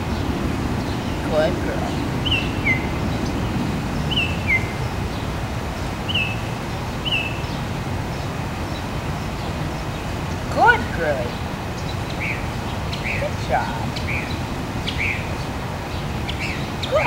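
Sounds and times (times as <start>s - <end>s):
low outdoor rumble: 0.0s - 7.0s
bird chirping: 0.0s - 17.0s.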